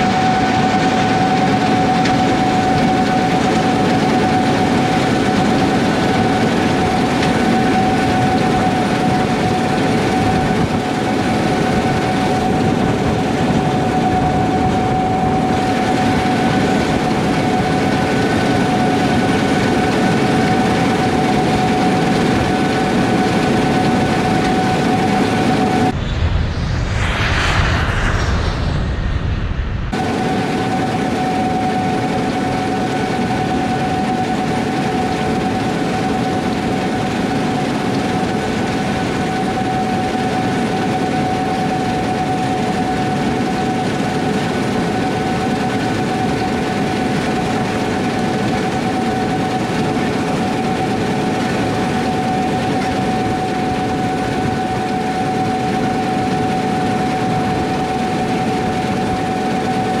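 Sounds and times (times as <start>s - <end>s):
steady whine: 24.8s - 31.5s.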